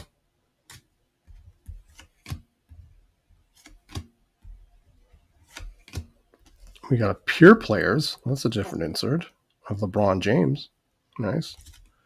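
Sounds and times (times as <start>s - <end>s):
trading cards clicking: 5.5s - 6.8s.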